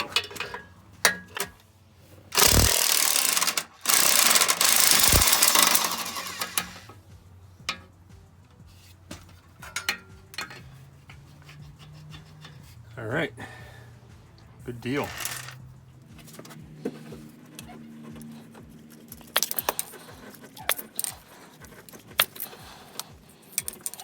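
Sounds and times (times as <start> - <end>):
impact wrench hammering: 2.4 - 6.9
light metallic clinks of tools: 9.6 - 12.6.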